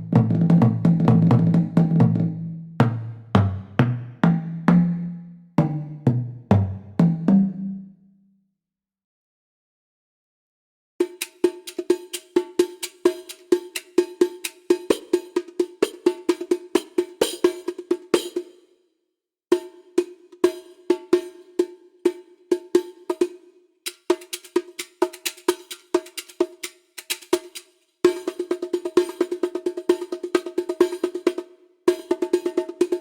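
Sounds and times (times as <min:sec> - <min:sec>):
hand drum percussion: 0:00.0 - 0:07.9, 0:11.0 - 0:18.6, 0:19.5 - 0:33.0.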